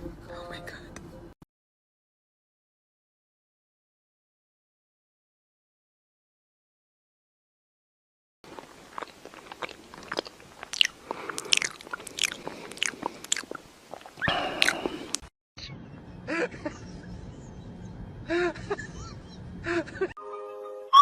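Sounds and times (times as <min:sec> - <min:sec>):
crunchy chewing: 0:08.5 - 0:15.3.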